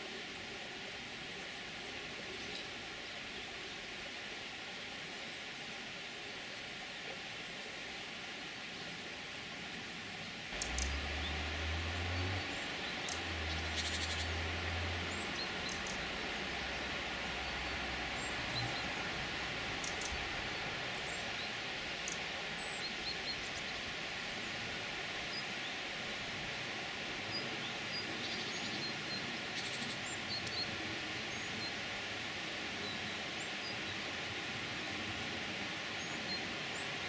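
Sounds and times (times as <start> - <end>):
steady background hiss: 0.0 - 37.0
small birds chirping: 10.5 - 24.6, 27.3 - 31.8.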